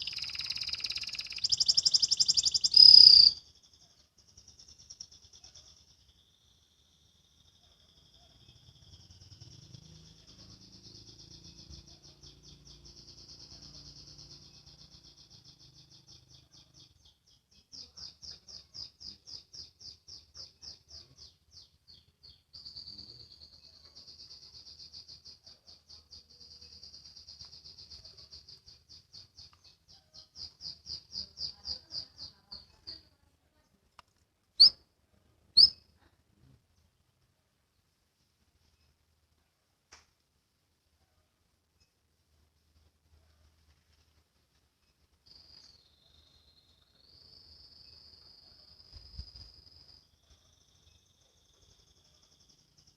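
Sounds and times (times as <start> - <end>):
canary singing rapid trills: 0.0 - 33.2, 34.6 - 34.8, 35.5 - 35.9.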